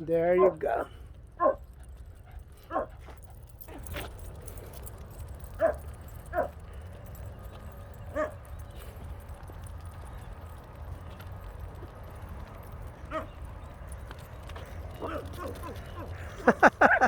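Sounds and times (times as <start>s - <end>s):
dogs barking: 0.2s - 4.7s, 5.4s - 7.2s, 8.0s - 9.0s, 12.6s - 17.0s.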